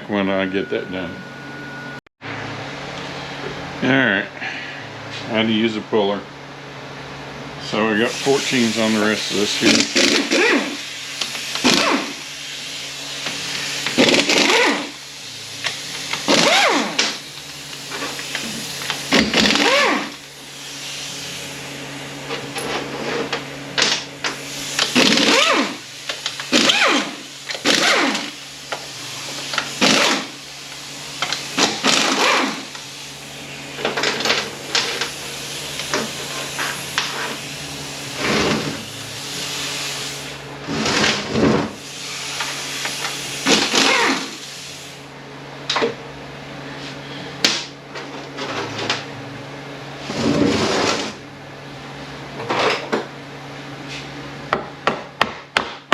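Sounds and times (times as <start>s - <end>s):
steady low hum: 0.0s - 55.9s
power tool spinning bolts: 8.3s - 12.3s, 13.2s - 15.0s, 15.6s - 20.9s, 24.2s - 33.0s, 42.2s - 44.5s.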